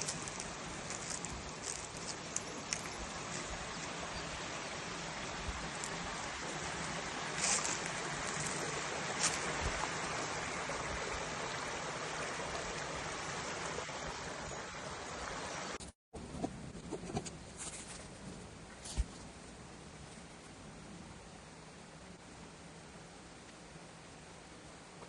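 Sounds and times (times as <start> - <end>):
flowing stream water: 0.0 - 15.8.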